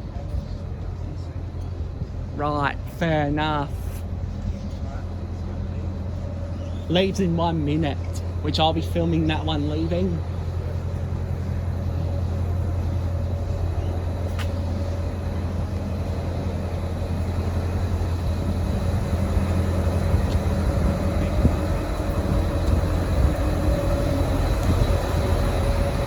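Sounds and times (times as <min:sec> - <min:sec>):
diesel railcar idling: 0:00.0 - 0:26.0.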